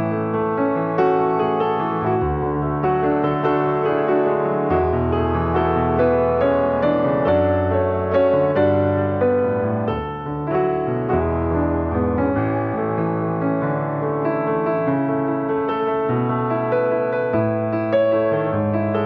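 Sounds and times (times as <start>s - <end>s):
soft piano melody: 0.0s - 19.0s.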